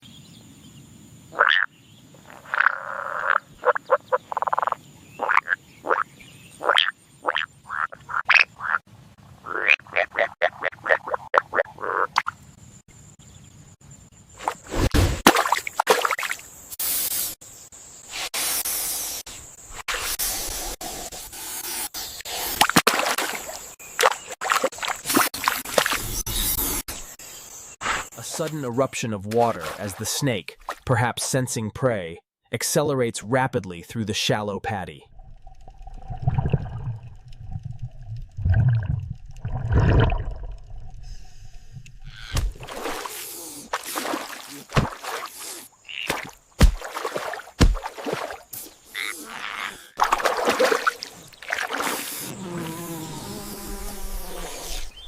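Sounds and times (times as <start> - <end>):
frogs croaking: 1.1 - 13.5, 42.0 - 42.4, 45.0 - 47.4, 48.1 - 53.4
water splashing and spraying: 14.4 - 17.4, 18.1 - 26.8, 27.8 - 30.9, 42.4 - 49.1, 50.0 - 52.4.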